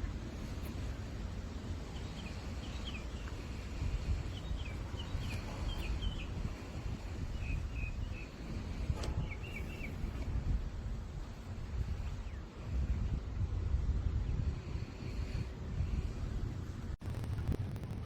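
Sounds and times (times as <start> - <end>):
steady low rumble: 0.0 - 18.0
small bird chirping: 1.8 - 10.2.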